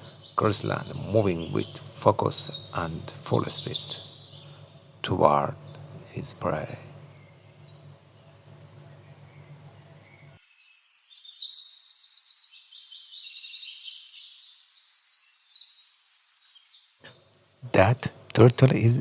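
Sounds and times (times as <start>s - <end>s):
low steady hum: 0.0s - 10.6s, 17.0s - 19.0s
songbirds chirping and trilling: 0.0s - 19.0s.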